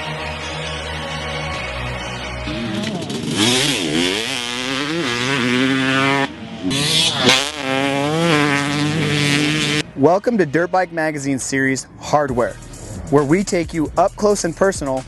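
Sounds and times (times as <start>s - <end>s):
dirt bike engine revving: 2.4s - 11.2s.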